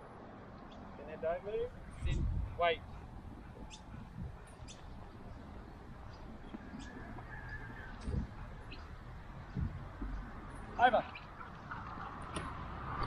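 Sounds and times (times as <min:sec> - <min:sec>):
birds chirping: 0:00.0 - 0:12.7.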